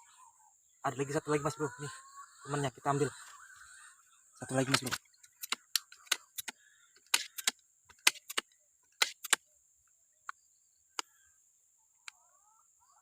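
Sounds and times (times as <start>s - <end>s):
air rifle clicks and knocks: 4.6s - 9.4s.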